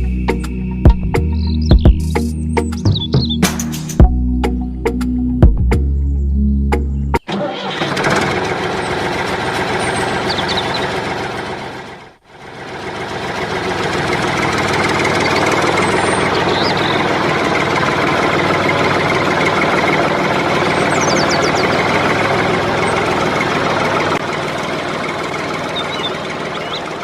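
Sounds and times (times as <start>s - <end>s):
small engine rattling: 7.3s - 27.0s.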